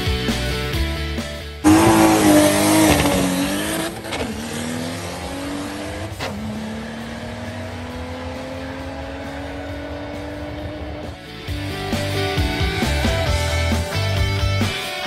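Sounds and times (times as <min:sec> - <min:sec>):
car engine revving through gears: 0:01.6 - 0:11.2.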